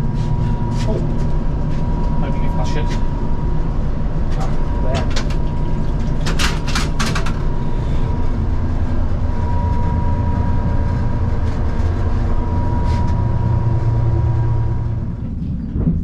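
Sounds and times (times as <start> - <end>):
faint high whine: 0.0 - 6.7, 7.4 - 15.2
train running gear rumble: 0.0 - 16.0
sharp clicks and rattles: 4.3 - 7.6.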